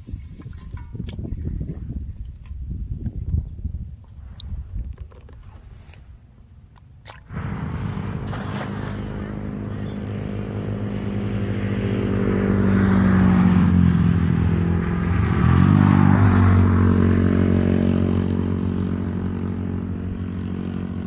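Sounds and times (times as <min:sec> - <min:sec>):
small engine running: 0:07.3 - 0:11.5.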